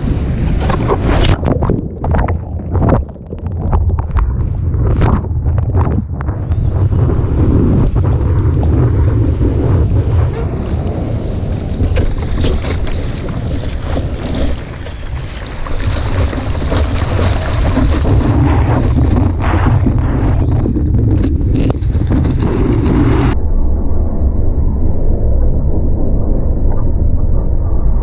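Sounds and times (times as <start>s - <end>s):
wind buffeting microphone: 0.0s - 23.6s
rushing ocean water: 10.1s - 23.4s.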